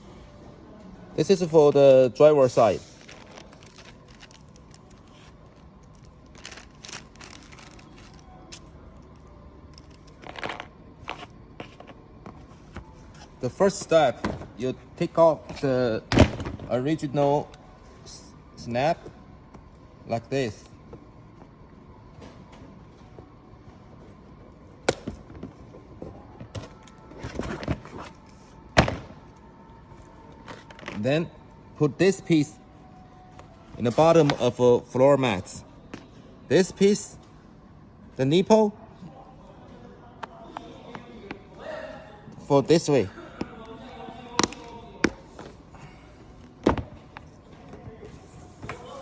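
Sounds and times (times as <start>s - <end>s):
carpet rustling and scraping: 10.1s - 13.4s.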